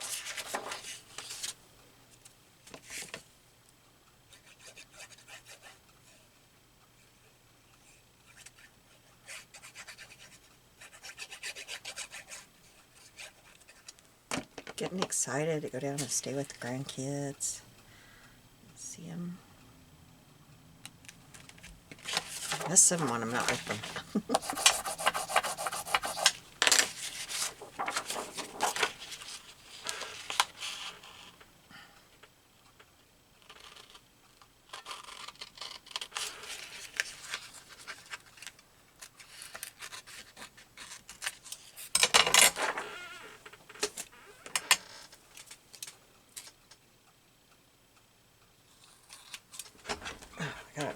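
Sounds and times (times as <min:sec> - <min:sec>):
paper rustling: 0:00.0 - 0:01.6, 0:21.4 - 0:31.1, 0:36.0 - 0:41.8.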